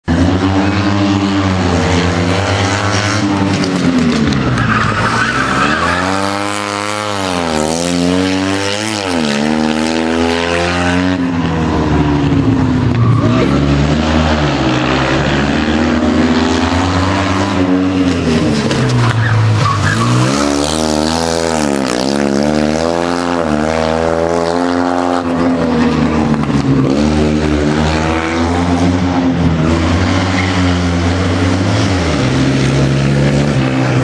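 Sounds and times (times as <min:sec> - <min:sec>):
rally car engine revving: 0:00.0 - 0:34.0
tyres squealing: 0:18.8 - 0:21.0.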